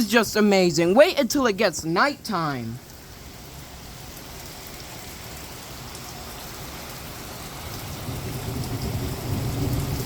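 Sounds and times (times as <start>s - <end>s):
heavy rain pouring: 0.0s - 10.0s
low rumble of thunder: 3.4s - 10.0s.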